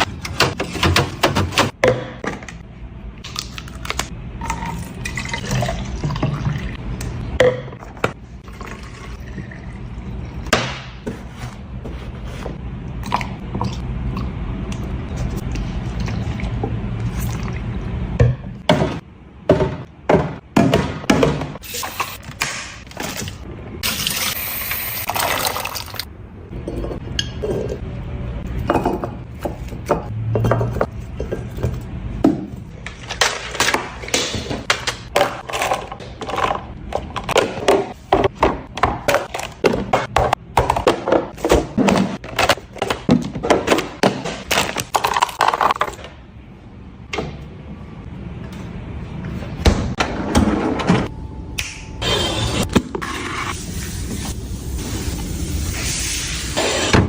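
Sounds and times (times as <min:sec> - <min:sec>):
food containers clinking: 0:32.8 - 0:46.1.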